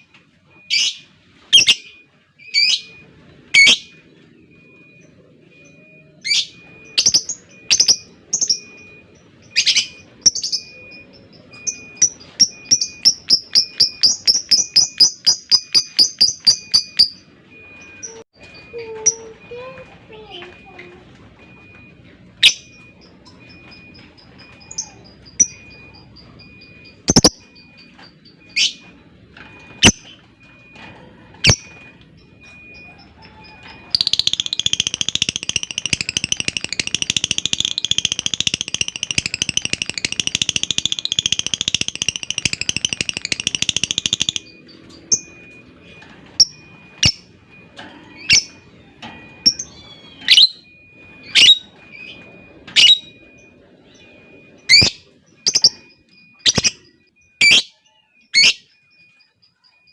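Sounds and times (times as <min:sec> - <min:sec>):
lovebird chirping and trilling: 0:00.7 - 0:04.1, 0:05.6 - 0:17.3, 0:22.4 - 0:29.0, 0:31.4 - 0:33.2, 0:33.8 - 0:45.5, 0:46.4 - 0:47.4, 0:48.1 - 0:48.7, 0:49.4 - 0:58.8.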